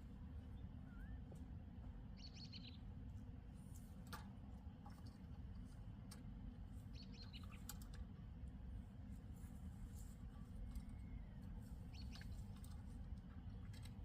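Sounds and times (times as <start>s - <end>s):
low outdoor rumble: 0.0s - 14.0s
songbird twittering: 0.8s - 1.2s, 2.2s - 2.8s, 7.0s - 7.6s, 11.0s - 12.4s.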